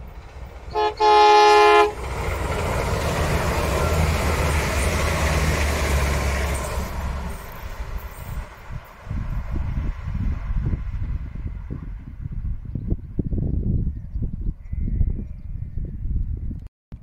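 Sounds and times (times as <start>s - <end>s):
wheel-on-rail noise: 0.0s - 12.2s
diesel train rumble: 0.0s - 13.8s
train horn blasts: 0.7s - 2.1s.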